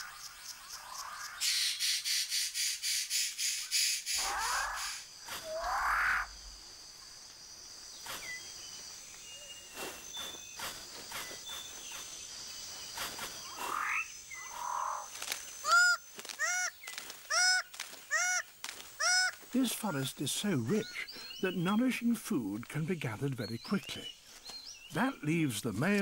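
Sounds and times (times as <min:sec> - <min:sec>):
high insect drone: 0:00.0 - 0:25.5
birds calling: 0:00.0 - 0:26.0
repeated arched bird call: 0:01.3 - 0:06.4.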